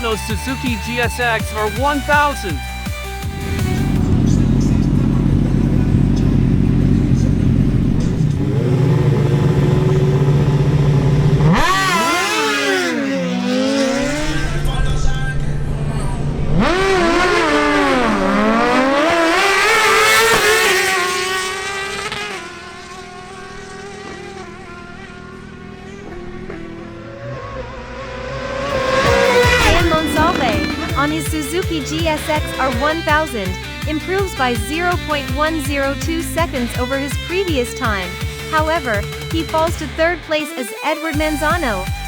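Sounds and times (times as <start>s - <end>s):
motorcycle engine revving through gears: 2.9s - 33.9s.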